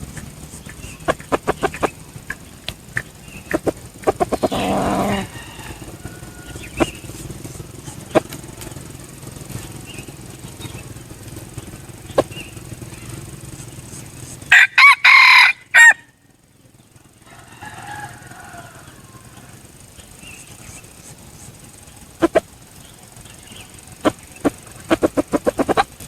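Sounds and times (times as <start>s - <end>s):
sharp clicks: 0.0s - 4.8s
low background noise: 0.0s - 26.0s
rooster crowing: 4.3s - 7.5s, 14.5s - 16.2s, 17.2s - 19.9s.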